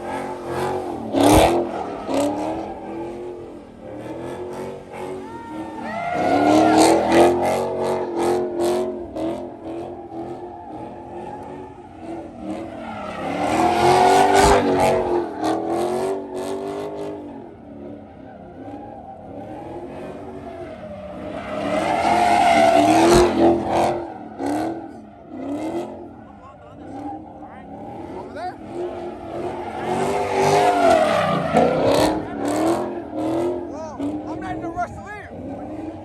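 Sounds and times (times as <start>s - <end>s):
car engine revving: 0.0s - 36.0s
tyres squealing: 5.0s - 7.4s.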